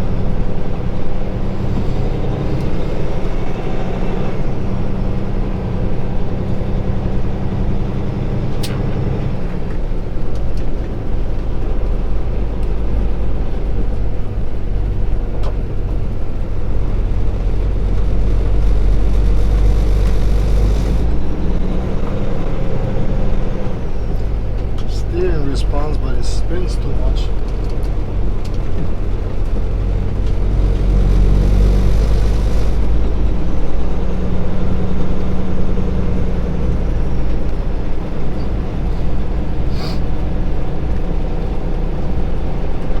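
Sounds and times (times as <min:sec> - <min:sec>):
road noise: 0:00.0 - 0:43.0
truck diesel engine running: 0:00.0 - 0:43.0.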